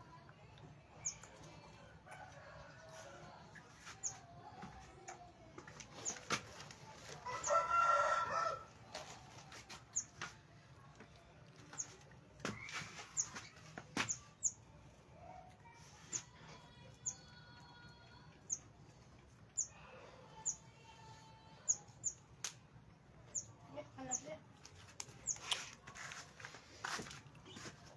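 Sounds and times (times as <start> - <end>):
small birds chirping: 0.9 - 2.3, 3.3 - 22.4, 23.2 - 25.9
rooster crowing: 7.2 - 8.7.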